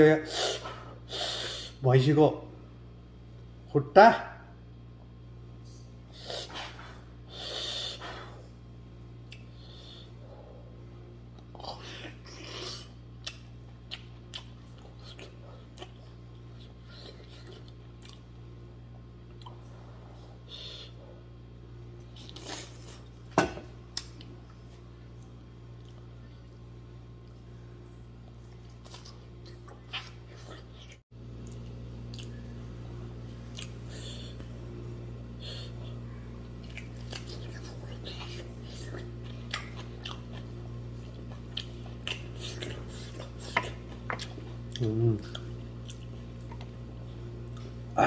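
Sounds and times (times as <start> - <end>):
steady low hum: 0.0 - 48.0
chewing and wet mouth clicks: 9.2 - 9.5, 13.2 - 16.5, 17.3 - 18.3, 28.5 - 32.4, 33.5 - 33.8, 36.6 - 46.8.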